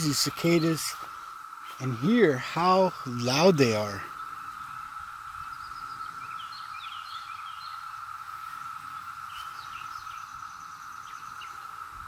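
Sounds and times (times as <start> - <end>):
cicadas droning: 0.0 - 12.0
bird chirps: 8.9 - 11.6.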